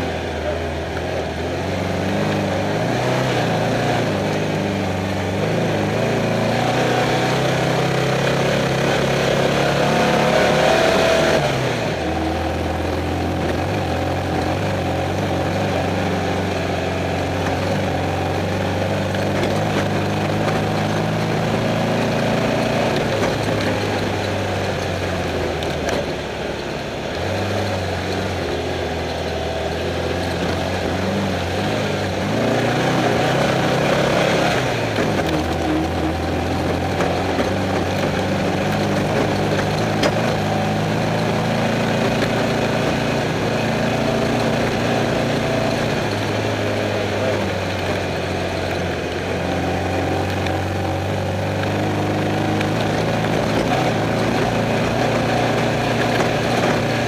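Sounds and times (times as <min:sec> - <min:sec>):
race car engine running hard: 0:00.0 - 0:57.0
rush of driving noise: 0:00.0 - 0:57.0.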